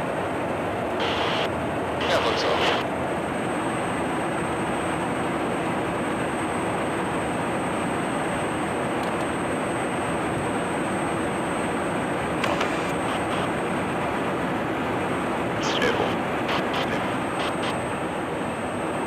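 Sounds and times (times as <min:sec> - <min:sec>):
jet engine rush and whine: 0:00.0 - 0:19.0.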